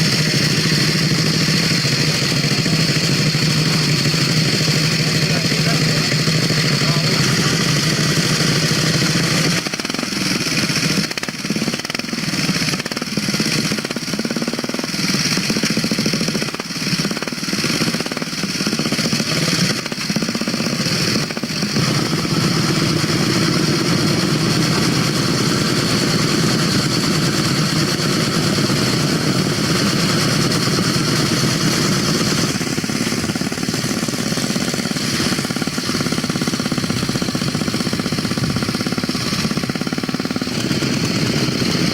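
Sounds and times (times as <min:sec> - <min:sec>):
motorcycle engines running: 0:00.0 - 0:41.9.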